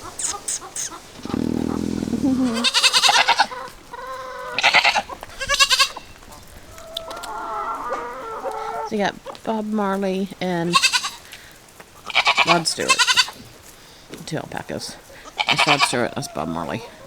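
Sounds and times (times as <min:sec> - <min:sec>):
goats bleating: 0:00.0 - 0:06.3, 0:10.7 - 0:11.3, 0:12.0 - 0:13.5, 0:15.2 - 0:16.7.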